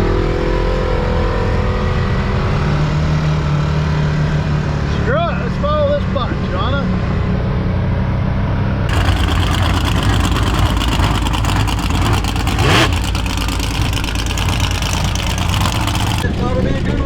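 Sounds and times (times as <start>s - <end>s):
truck engine roaring: 8.9s - 17.0s.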